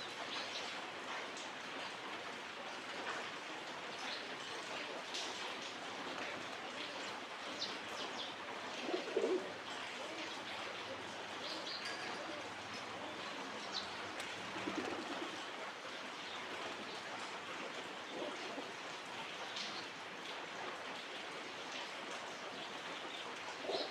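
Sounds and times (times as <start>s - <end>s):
pigeons cooing: 8.5s - 15.7s, 17.5s - 19.0s, 23.6s - 23.9s.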